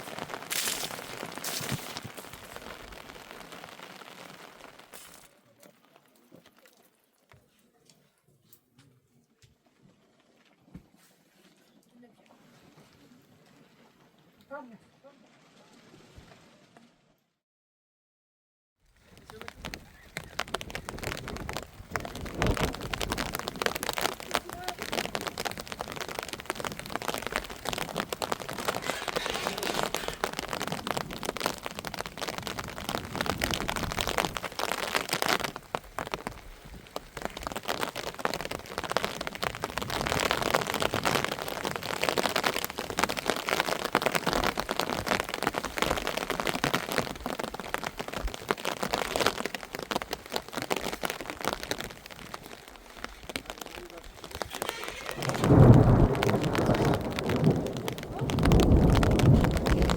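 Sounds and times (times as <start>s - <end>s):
heavy rain falling: 0.0s - 6.7s, 19.0s - 59.9s.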